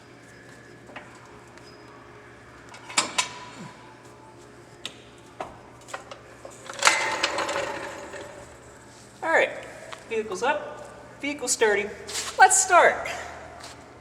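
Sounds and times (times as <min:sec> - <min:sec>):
metal jack clanking: 0:02.7 - 0:03.5, 0:06.0 - 0:08.5.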